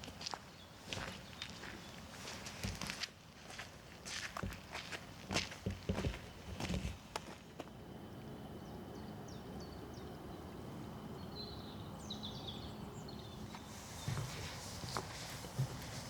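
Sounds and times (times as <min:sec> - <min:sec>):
small birds chirping: 0:00.0 - 0:03.0, 0:04.1 - 0:16.0
footsteps on forest path: 0:00.0 - 0:07.8, 0:13.4 - 0:16.0
steady low background hum: 0:00.0 - 0:16.0.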